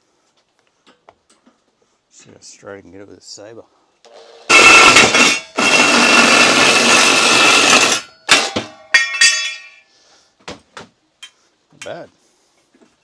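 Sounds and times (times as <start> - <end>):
reciprocating saw cutting metal: 4.4 - 8.6
metallic clanks with ringing: 7.8 - 9.9.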